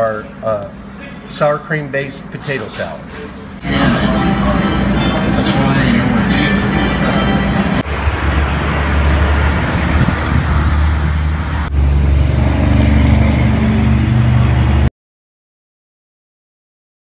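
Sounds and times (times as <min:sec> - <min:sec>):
traffic rumble: 0:00.0 - 0:14.9
engine hum: 0:02.9 - 0:14.9.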